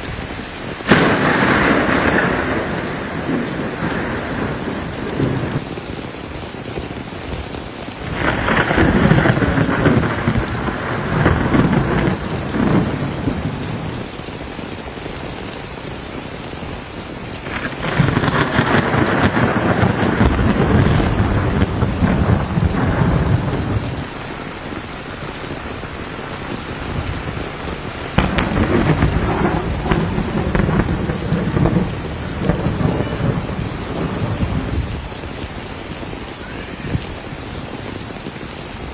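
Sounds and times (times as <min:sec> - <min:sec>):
steady rain: 0:00.0 - 0:38.9
rolls of thunder: 0:00.8 - 0:05.7, 0:08.0 - 0:14.1, 0:17.4 - 0:35.6.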